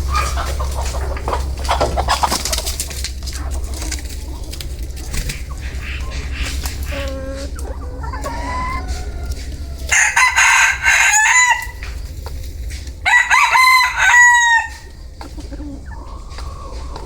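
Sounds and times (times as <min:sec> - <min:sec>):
rooster clucking: 0:00.0 - 0:17.0
rooster crowing: 0:06.9 - 0:11.9, 0:13.0 - 0:15.0.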